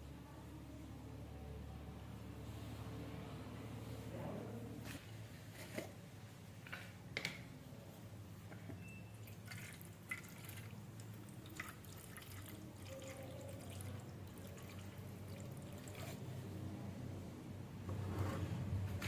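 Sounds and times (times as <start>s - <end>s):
faint liquid drips: 9.1s - 16.3s.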